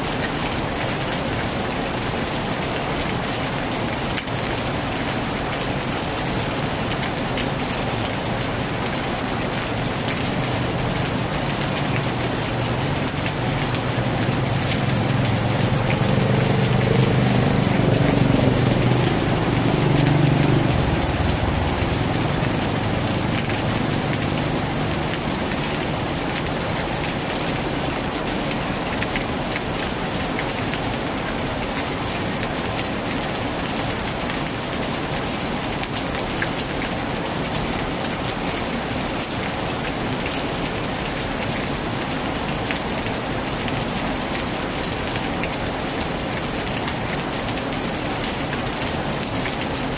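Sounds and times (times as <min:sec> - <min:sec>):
heavy rain falling: 0:00.0 - 0:49.9
vehicle engine running: 0:14.2 - 0:24.9.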